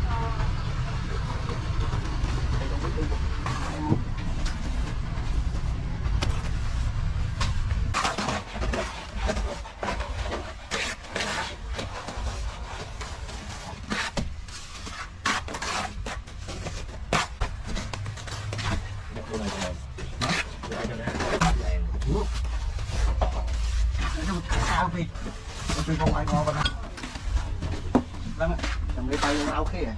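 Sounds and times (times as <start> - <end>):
low rumble: 0.0 - 8.0
knocks and scrapes: 1.1 - 29.9.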